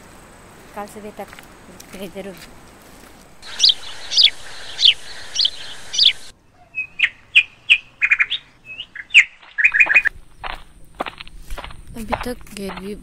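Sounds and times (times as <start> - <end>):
steady hiss: 3.2 - 6.3
small birds chirping: 3.4 - 13.0.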